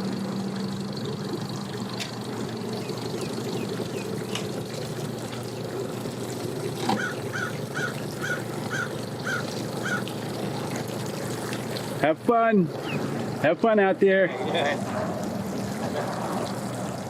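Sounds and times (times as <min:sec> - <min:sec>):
boat engine idling hum: 0:00.0 - 0:17.0
bird calling short notes: 0:06.9 - 0:10.1.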